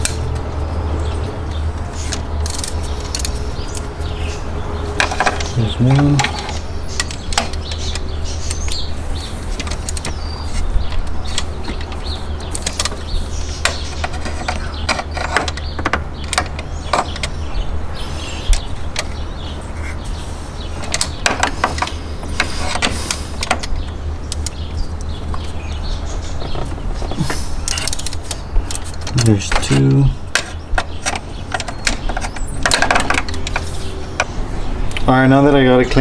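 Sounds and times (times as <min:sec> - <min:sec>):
metallic clicks and knocks: 0:05.0 - 0:08.9, 0:09.5 - 0:17.4, 0:26.3 - 0:35.1.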